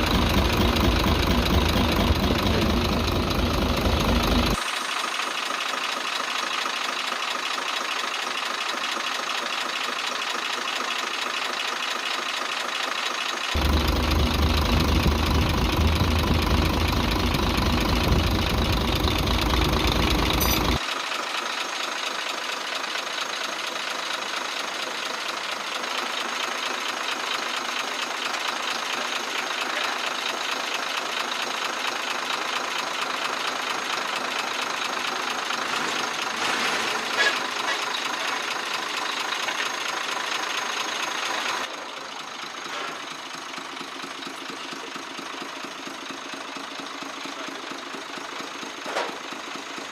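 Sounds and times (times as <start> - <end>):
diesel engine ticking and knocking: 0.0 - 49.9
heavy low rumble: 13.6 - 20.8.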